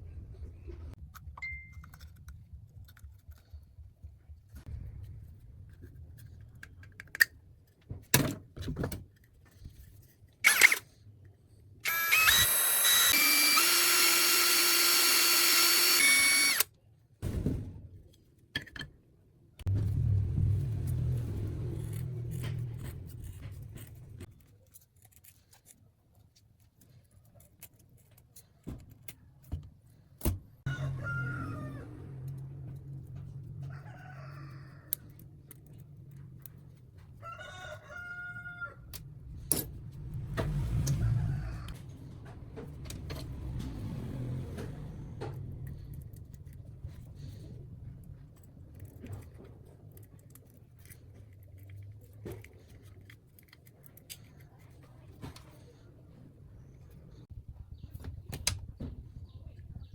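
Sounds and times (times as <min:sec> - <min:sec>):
power tool high whine: 0:11.8 - 0:16.7
low rumbling: 0:19.6 - 0:24.3.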